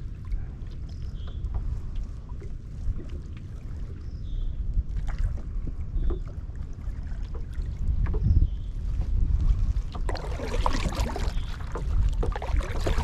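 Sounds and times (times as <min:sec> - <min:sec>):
wind rumbling on microphone: 0:00.0 - 0:13.0
water splashing and dripping: 0:09.7 - 0:13.0.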